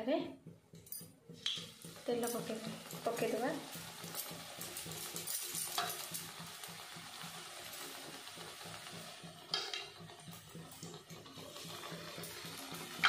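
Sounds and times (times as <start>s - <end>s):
fritter sizzling in hot oil: 1.3s - 13.0s.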